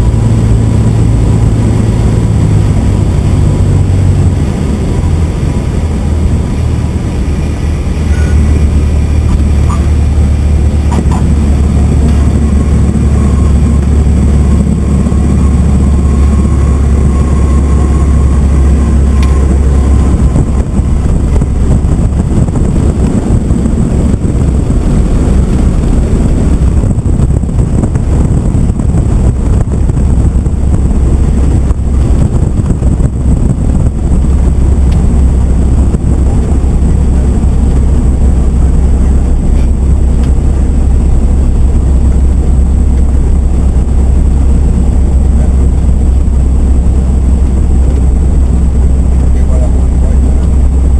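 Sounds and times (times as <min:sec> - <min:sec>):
plane engine droning: 0:00.0 - 0:50.9.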